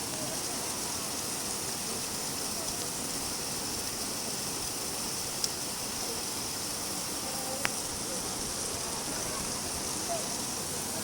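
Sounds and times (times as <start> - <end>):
steady rain hiss: 0.0 - 11.0
sharp taps of raindrops: 7.6 - 7.9.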